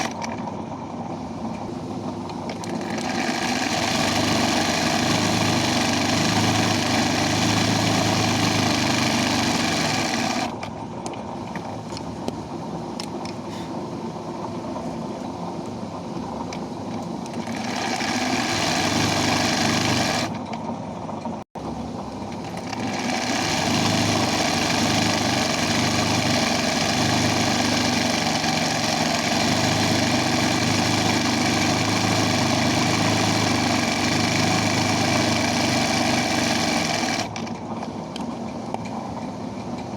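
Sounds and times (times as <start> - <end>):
embroidery machine stitching: 0.0 - 0.2, 2.4 - 10.6, 17.3 - 20.4, 22.3 - 37.4.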